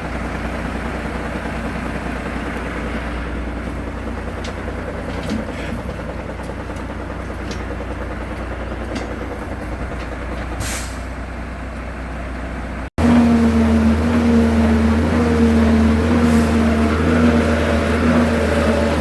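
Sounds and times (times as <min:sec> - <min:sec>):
diesel truck engine running: 0:00.0 - 0:19.0
air hiss: 0:10.6 - 0:11.1.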